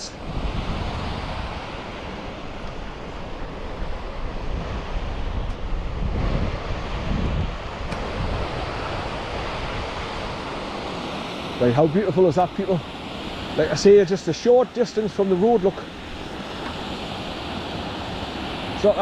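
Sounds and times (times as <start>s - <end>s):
wind buffeting microphone: 0.1s - 19.0s
waterfall rushing: 8.7s - 19.0s.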